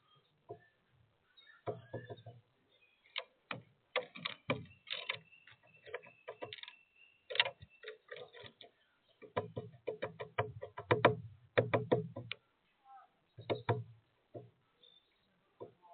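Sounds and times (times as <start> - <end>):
woodpecker tapping on feeder: 3.1 - 8.6, 9.2 - 12.3.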